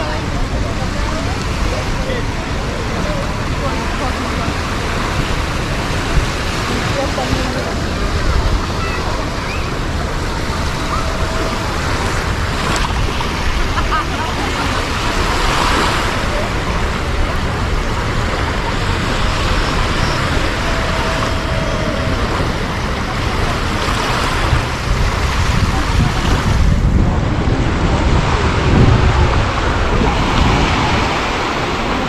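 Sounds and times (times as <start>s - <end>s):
surf washing onto beach: 0.0s - 32.0s
wind buffeting microphone: 0.0s - 32.0s.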